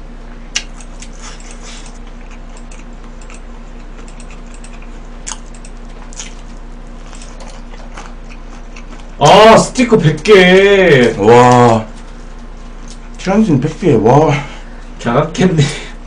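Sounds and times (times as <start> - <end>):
faint low hum: 0.0 - 16.0
crunchy chewing of fried chicken: 0.5 - 10.3, 10.9 - 13.8.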